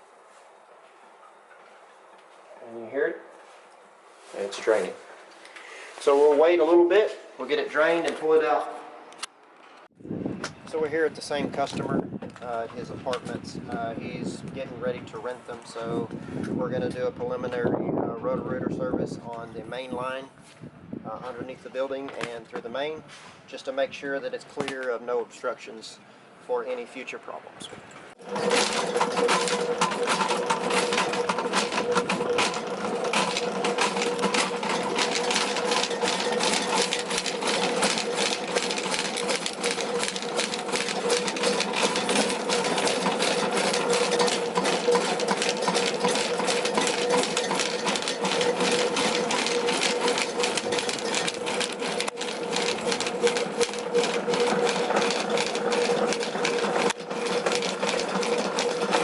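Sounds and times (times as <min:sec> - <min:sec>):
drain-cleaning machine motor hum: 0:28.2 - 0:59.0
fast continuous rattle: 0:28.2 - 0:59.0.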